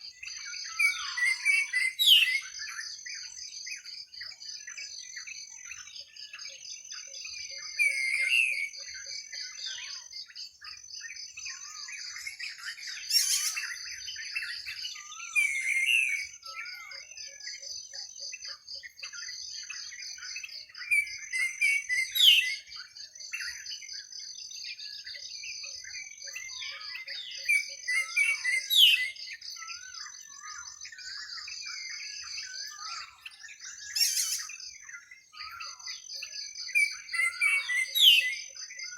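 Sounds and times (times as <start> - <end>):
birds chirping and warbling: 0.0 - 38.9
downward-sweeping bird whistle: 0.0 - 38.9
insect trill: 11.3 - 38.9.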